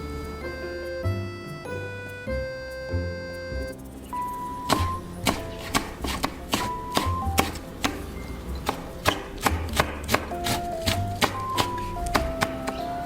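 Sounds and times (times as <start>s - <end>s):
background music: 0.0s - 13.0s
knife chopping on cutting board: 4.7s - 8.0s, 8.6s - 12.9s.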